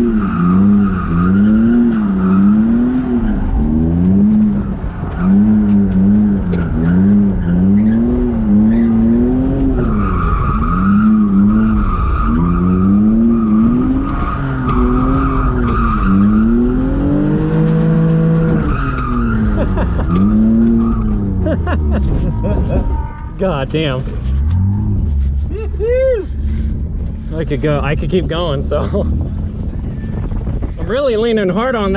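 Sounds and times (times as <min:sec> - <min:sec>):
car engine revving: 0:00.0 - 0:30.7.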